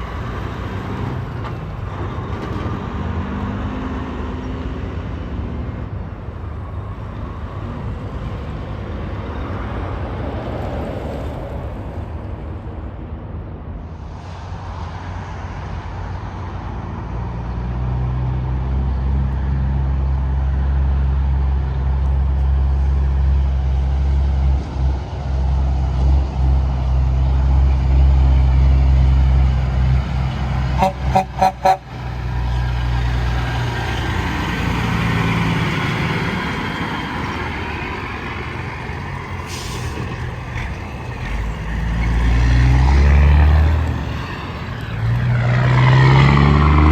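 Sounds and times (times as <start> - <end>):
truck engine drone: 0.0 - 46.9
tyre and road noise: 0.0 - 46.9
air horn toots: 30.8 - 32.0.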